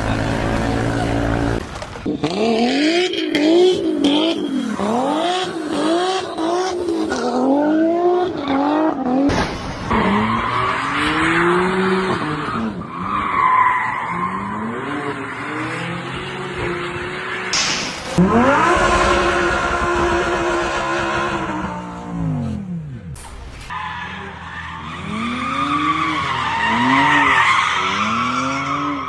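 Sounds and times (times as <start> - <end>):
car engine revving: 0.0 - 29.0
tyres squealing and skidding: 9.8 - 22.3, 23.6 - 29.0.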